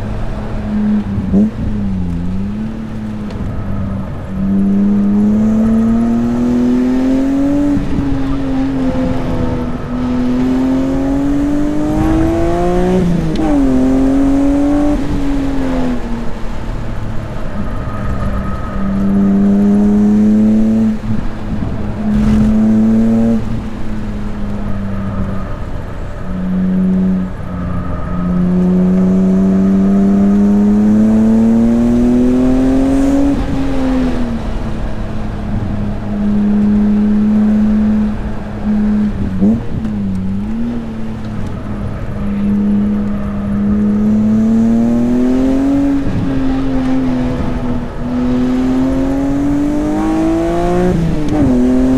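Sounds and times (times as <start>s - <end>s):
car engine revving hard: 4.4s - 16.0s, 19.1s - 23.9s, 41.9s - 51.9s.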